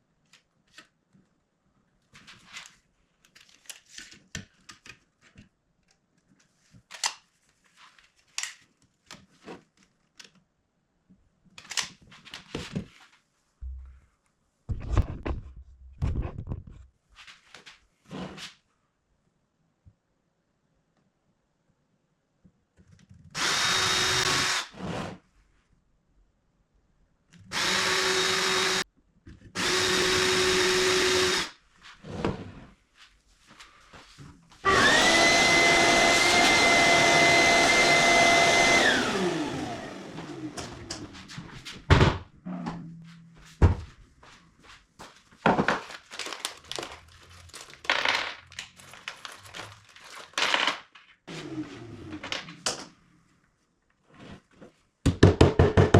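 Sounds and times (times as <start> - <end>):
electric drill running: 23.4 - 24.7, 27.5 - 28.8, 29.6 - 31.5, 34.6 - 40.9.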